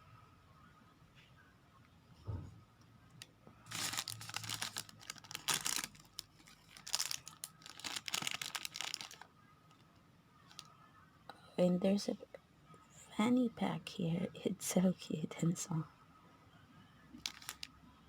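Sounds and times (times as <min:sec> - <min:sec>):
soft knock: 0:02.3 - 0:02.6
plastic wrapper crinkling and tearing: 0:03.6 - 0:09.3, 0:10.5 - 0:10.7, 0:17.2 - 0:17.7.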